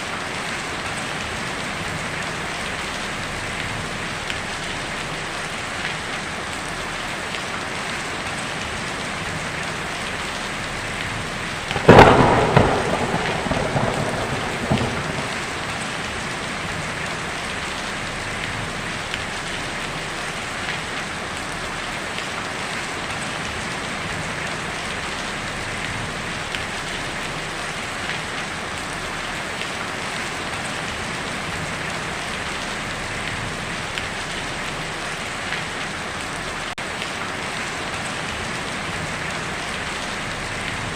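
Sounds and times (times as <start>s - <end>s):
heavy rain on a tin roof: 0.0s - 40.9s
thunderclap rumbling: 11.6s - 18.9s.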